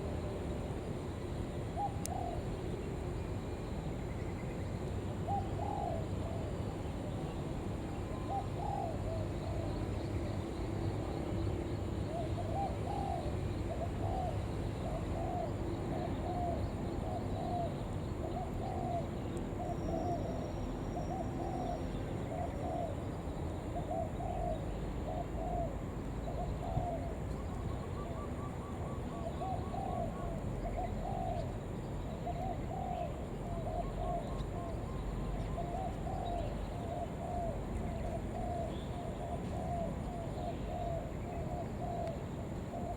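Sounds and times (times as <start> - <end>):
dove cooing: 23.8 - 25.7, 26.3 - 27.2, 32.2 - 42.1.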